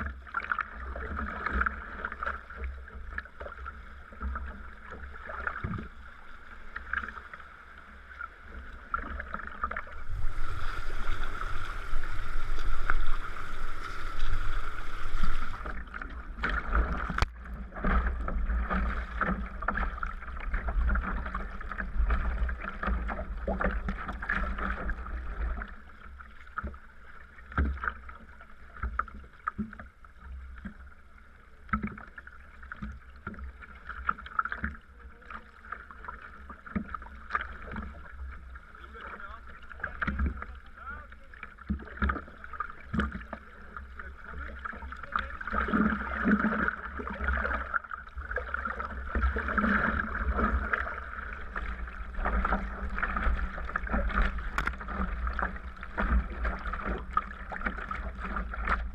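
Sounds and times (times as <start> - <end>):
paddle splashing in water: 0.0 - 58.9
water washing along hull: 0.0 - 58.9
wind rumble on microphone: 9.9 - 15.7.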